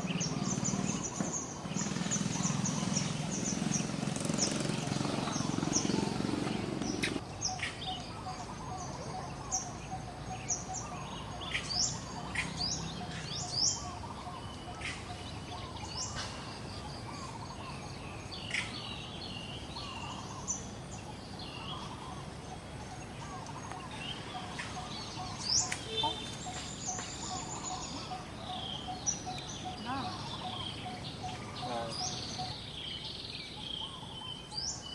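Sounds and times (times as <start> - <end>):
birds chirping: 0.0 - 34.9
outdoor background hiss: 0.0 - 34.9.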